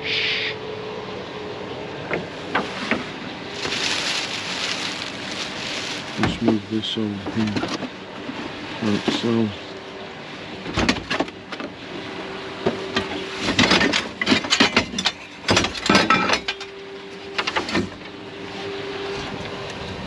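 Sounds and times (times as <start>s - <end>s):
objects rummaged through clattering: 2.5s - 9.5s, 13.0s - 16.6s.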